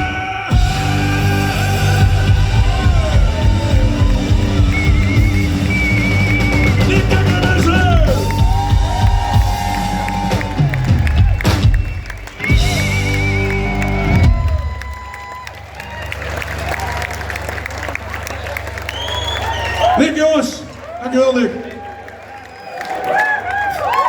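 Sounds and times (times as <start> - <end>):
live rock band playing: 0.0 - 15.1.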